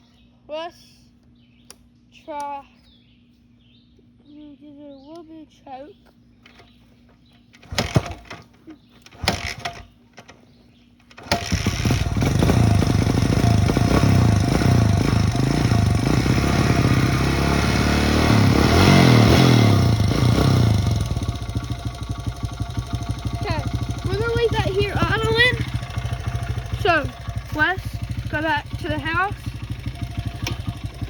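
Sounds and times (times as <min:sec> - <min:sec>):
dirt bike engine starting and revving: 0:07.6 - 0:10.0, 0:11.1 - 0:31.0.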